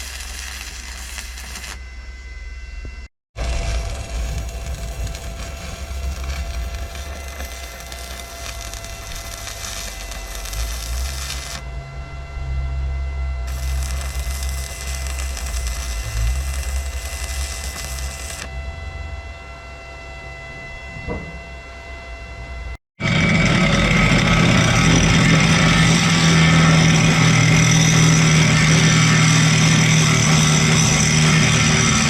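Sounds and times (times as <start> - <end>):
power tool running: 0.0 - 18.7, 23.0 - 32.0.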